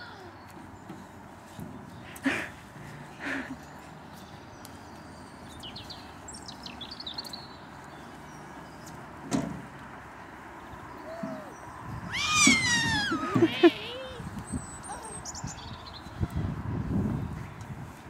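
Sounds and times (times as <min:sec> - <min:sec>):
small birds chirping: 0:03.2 - 0:09.2, 0:10.1 - 0:16.5.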